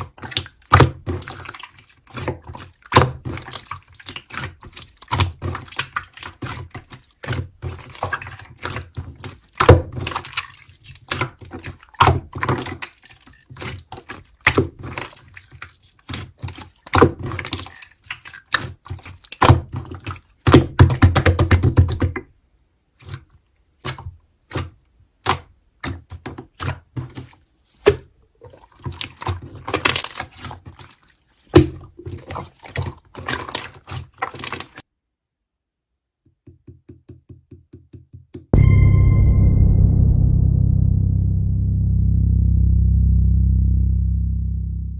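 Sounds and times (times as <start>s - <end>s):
slime squishing by hand: 0.0s - 22.1s, 23.0s - 34.8s.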